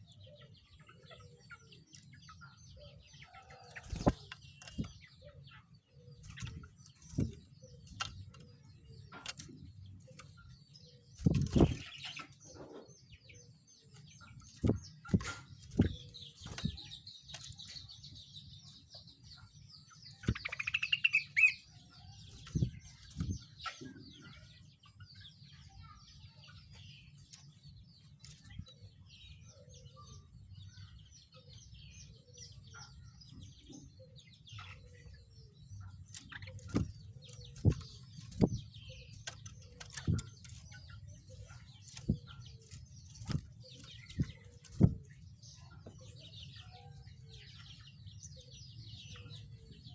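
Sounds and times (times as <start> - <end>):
rising bird chirping: 0.0 - 49.9
bird thumps and wing flutters: 3.5 - 5.1, 6.2 - 8.5, 9.1 - 10.4, 11.2 - 12.4, 14.4 - 17.7, 20.2 - 20.8, 22.3 - 23.6, 36.1 - 45.2
bird twittering: 20.1 - 24.0.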